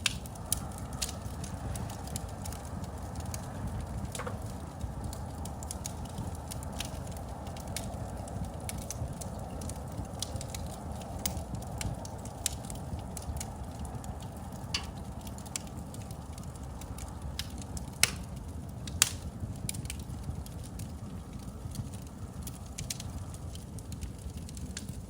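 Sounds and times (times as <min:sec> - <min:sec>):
wood fire crackling: 0:00.0 - 0:25.0
loud wood snaps: 0:04.1 - 0:04.6.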